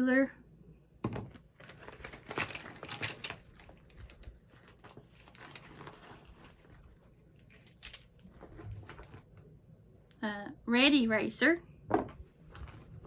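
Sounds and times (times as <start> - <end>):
rustling: 1.5 - 9.5.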